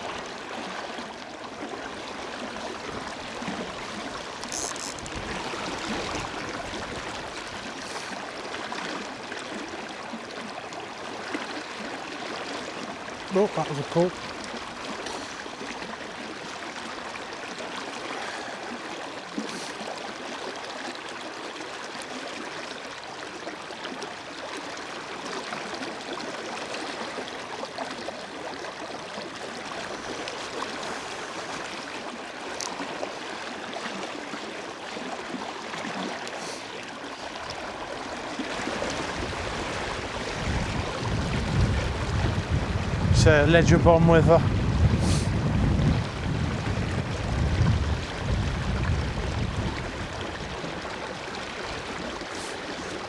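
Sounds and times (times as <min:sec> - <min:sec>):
river water rushing: 0:00.0 - 0:53.0
wind buffeting on microphone: 0:38.9 - 0:50.9.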